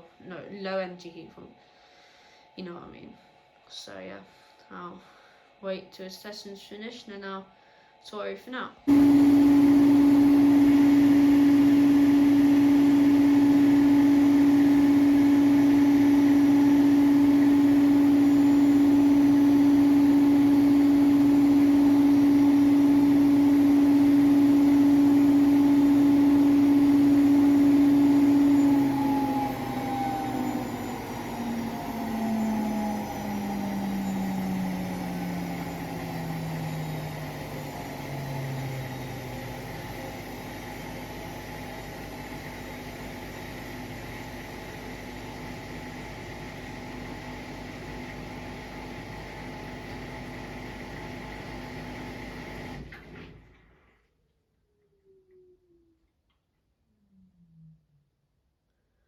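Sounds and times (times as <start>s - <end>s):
washing machine spinning: 8.9s - 53.6s.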